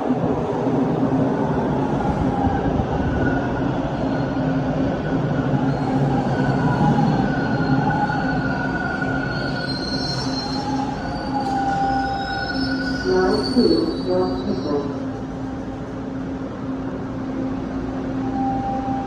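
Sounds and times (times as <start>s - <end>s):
subway train rumbling: 0.0s - 19.0s
high-pitched wheel squeal: 6.9s - 15.0s.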